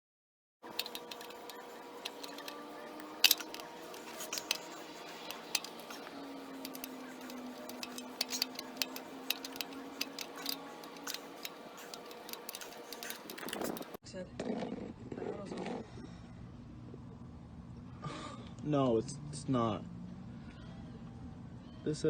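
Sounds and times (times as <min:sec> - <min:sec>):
metallic clinks of tools: 0:00.7 - 0:14.0.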